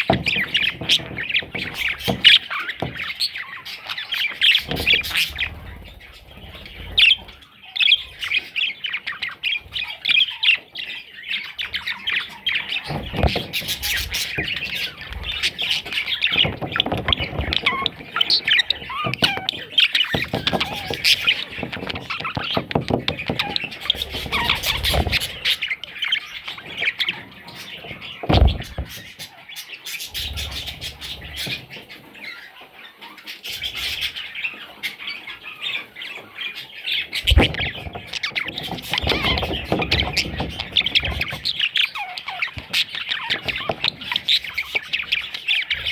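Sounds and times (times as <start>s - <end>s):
dull thumps: 0.0s - 3.4s, 4.5s - 7.3s, 12.6s - 29.3s, 37.2s - 41.8s, 42.4s - 45.9s
budgerigars chattering and squawking: 0.0s - 45.9s.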